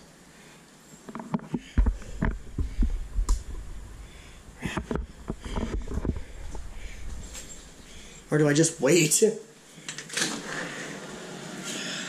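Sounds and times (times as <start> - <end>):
deep rumbles: 1.6 - 8.4.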